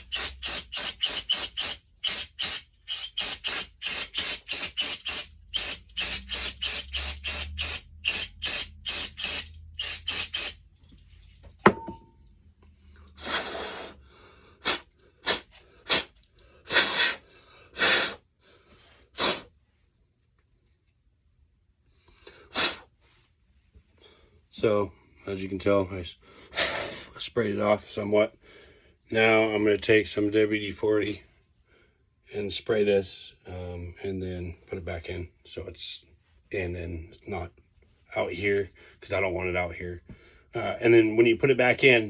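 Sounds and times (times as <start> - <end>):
aerosol can spraying in bursts: 0.0 - 10.6.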